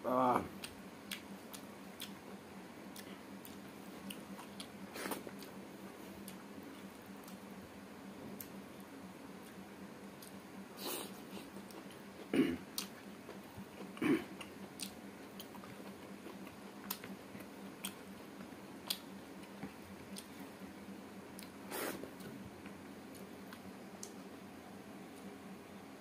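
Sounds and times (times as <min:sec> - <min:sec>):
chewing and biting meat: 0:00.6 - 0:02.3, 0:11.1 - 0:18.2.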